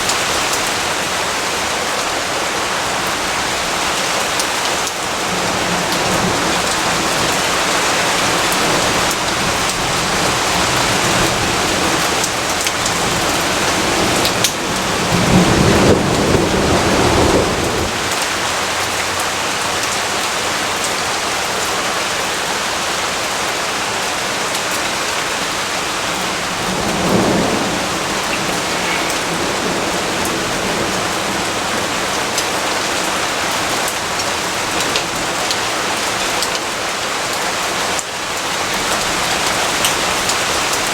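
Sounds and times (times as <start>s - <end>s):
steady rain falling: 0.0s - 40.9s
low rumbles of thunder: 5.2s - 18.2s, 25.9s - 32.9s.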